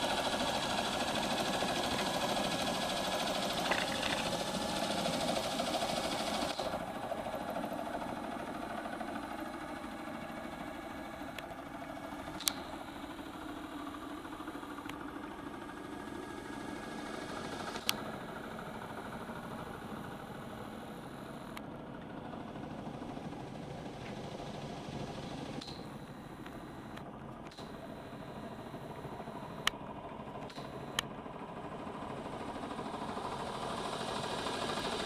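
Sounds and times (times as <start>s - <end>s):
cordless drill humming: 0.0s - 6.9s, 17.8s - 21.6s, 25.6s - 29.7s, 30.4s - 31.1s
sharp clicks: 12.4s - 12.7s, 25.6s - 28.5s.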